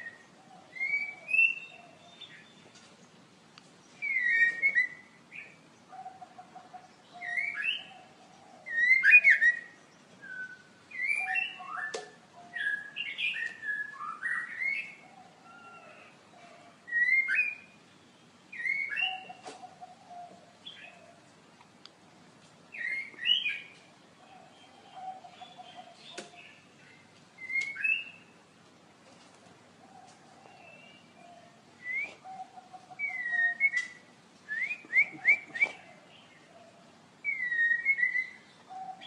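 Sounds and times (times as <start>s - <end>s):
songbird whistling phrases: 0.0s - 2.6s, 4.0s - 5.5s, 7.2s - 8.0s, 8.6s - 16.0s, 16.9s - 17.7s, 18.5s - 19.5s, 22.7s - 23.7s, 27.4s - 28.2s, 30.6s - 35.9s, 37.2s - 39.0s.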